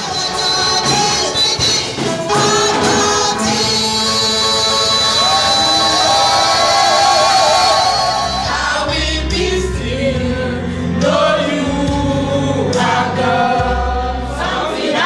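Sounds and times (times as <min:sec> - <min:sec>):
group singing gospel song: 0:00.0 - 0:15.0
instrumental backing: 0:00.0 - 0:15.0
sustained low bass: 0:08.2 - 0:14.4.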